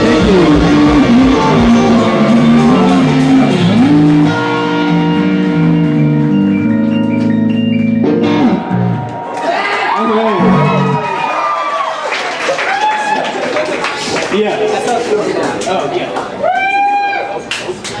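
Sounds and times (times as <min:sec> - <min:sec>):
live band music led by guitar: 0:00.0 - 0:09.4, 0:10.3 - 0:11.0.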